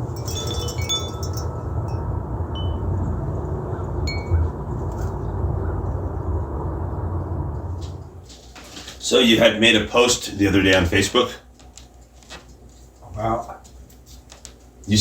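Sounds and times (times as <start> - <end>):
wind chimes tinkling: 0.0 - 3.0, 4.1 - 4.4
wind rumble on microphone: 0.0 - 8.4.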